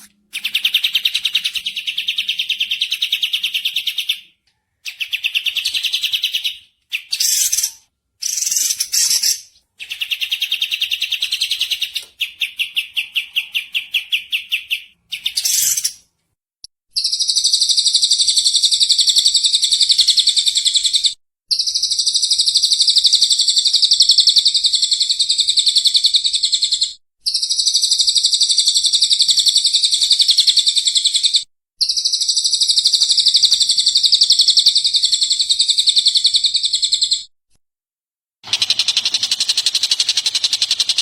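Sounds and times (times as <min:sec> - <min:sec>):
small bird twittering: 0:00.0 - 0:16.0.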